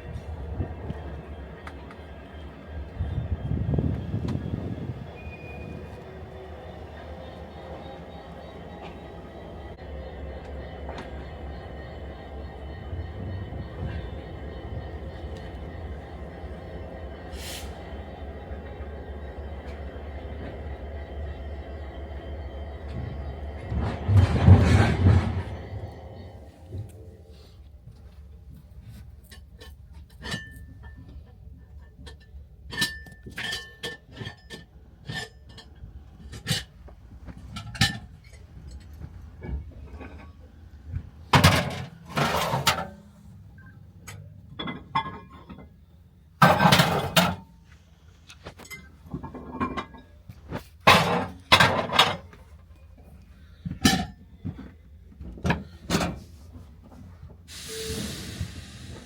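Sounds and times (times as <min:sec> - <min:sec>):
low steady rumble: 0:00.0 - 0:27.9
metallic clanks and knocks: 0:41.3 - 0:45.8, 0:46.4 - 0:47.6, 0:48.6 - 0:52.4.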